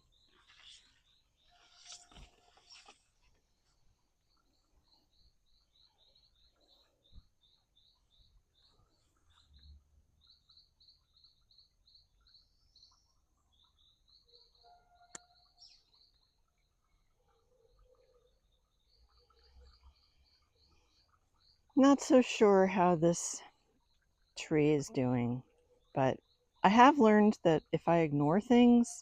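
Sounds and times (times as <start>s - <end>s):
bird chirping: 3.6s - 21.8s.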